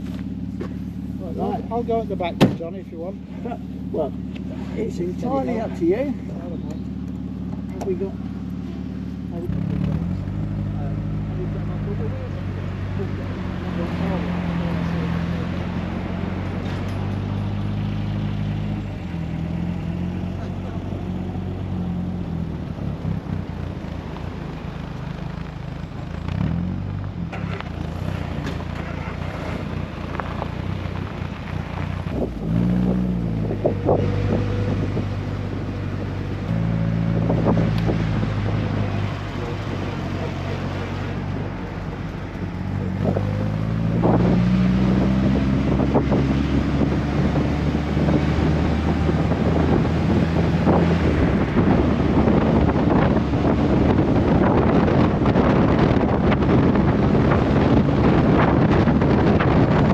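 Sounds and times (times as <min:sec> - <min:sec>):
car engine accelerating: 0:00.0 - 0:59.9
wind noise on microphone: 0:31.0 - 0:40.0, 0:41.2 - 0:59.9.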